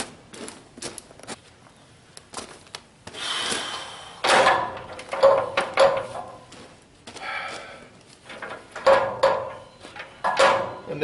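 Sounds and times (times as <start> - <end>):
sharp knocks: 8.8 - 10.8.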